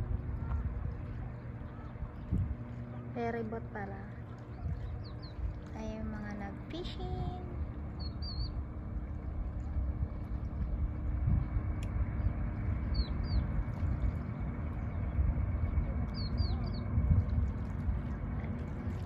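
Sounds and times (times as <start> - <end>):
steady low rumble: 0.0 - 19.0
small birds chirping: 8.0 - 8.6, 12.9 - 13.5, 16.1 - 16.9.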